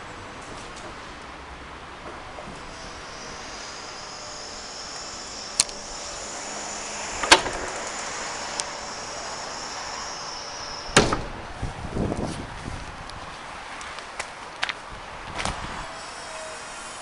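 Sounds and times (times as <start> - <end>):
steady high whine: 2.0 - 12.2.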